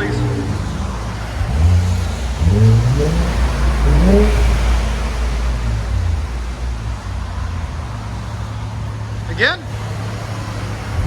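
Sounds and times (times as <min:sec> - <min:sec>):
car engine revving and idling: 0:00.0 - 0:11.0.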